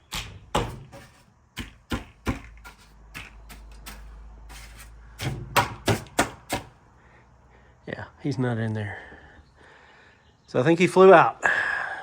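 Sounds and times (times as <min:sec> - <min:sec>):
sharp knocks and taps: 0:00.1 - 0:04.1.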